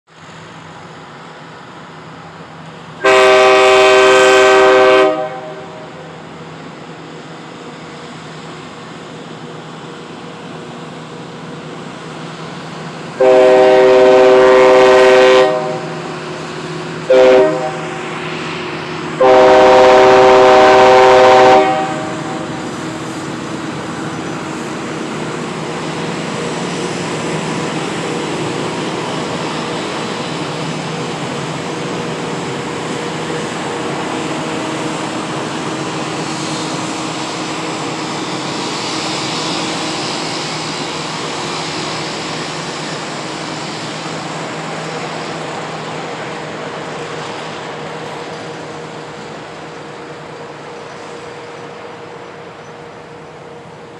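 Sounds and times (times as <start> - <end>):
train rumbling past: 0.1 - 53.9
train horn blasts: 3.0 - 5.9, 13.2 - 16.1, 17.1 - 18.0, 19.2 - 22.6.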